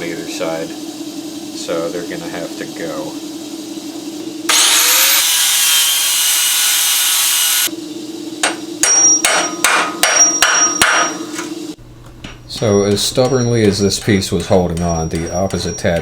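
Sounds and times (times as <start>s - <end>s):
power grinder cutting steel: 4.5s - 7.7s.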